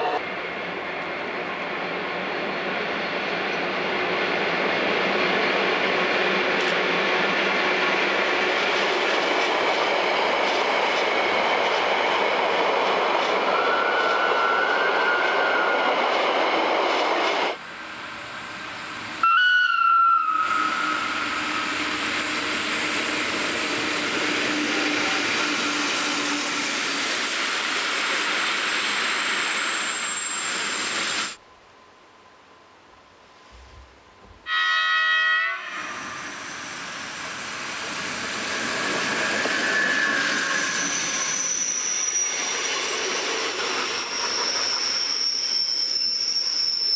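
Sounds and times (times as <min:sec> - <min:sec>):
train wheels rumbling on rails: 0:00.0 - 0:19.2, 0:20.3 - 0:31.4, 0:35.8 - 0:46.9
faint high wheel squeal: 0:28.3 - 0:31.4, 0:38.5 - 0:46.9.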